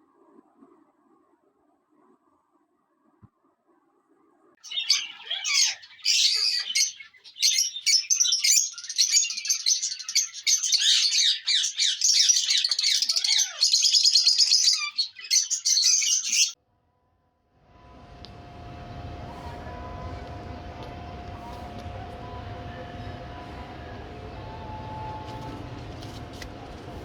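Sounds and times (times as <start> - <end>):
parrots chattering and squawking: 4.6 - 16.6.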